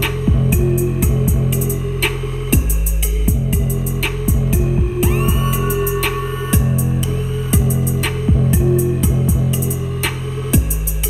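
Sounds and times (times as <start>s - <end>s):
heavy bass music: 0.0s - 11.0s
deep sustained bass note: 3.1s - 9.5s
crisp hi-hat ticks: 7.6s - 11.0s.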